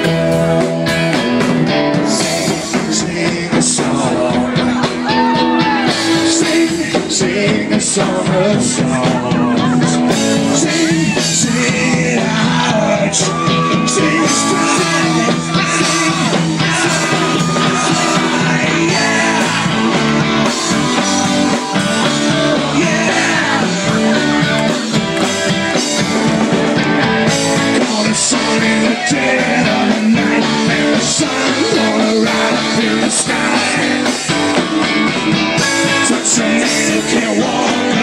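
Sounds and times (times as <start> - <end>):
live rock band playing: 0.0 - 38.0.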